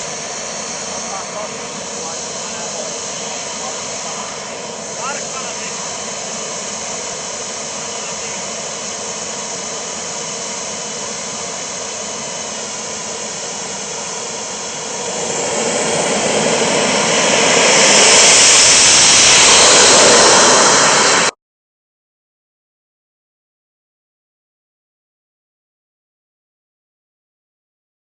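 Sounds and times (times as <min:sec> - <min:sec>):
jet engine spooling up: 0:00.0 - 0:21.4
model jet engine running: 0:00.0 - 0:21.4.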